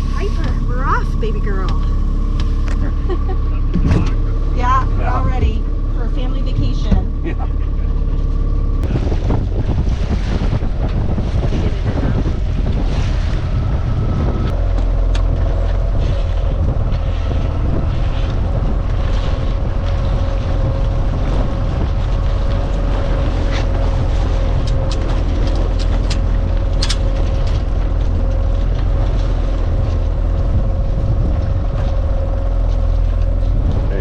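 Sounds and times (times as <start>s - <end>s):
boat motor humming: 0.0s - 34.0s
water noise: 0.0s - 34.0s
wind on microphone: 8.8s - 34.0s.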